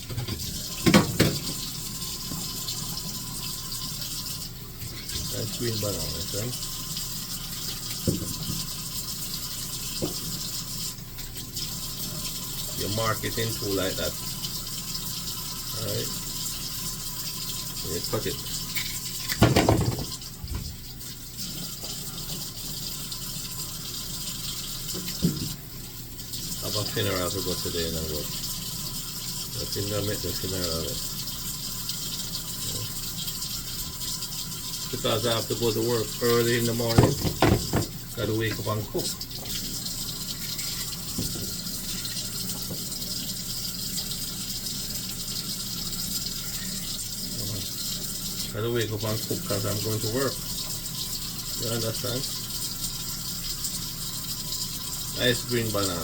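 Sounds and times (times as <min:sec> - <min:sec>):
tap running into a sink: 0:00.0 - 0:03.2, 0:07.6 - 0:10.7, 0:17.8 - 0:23.7, 0:24.3 - 0:25.7, 0:35.0 - 0:44.2
splash or knock: 0:19.3 - 0:20.7, 0:36.9 - 0:38.0.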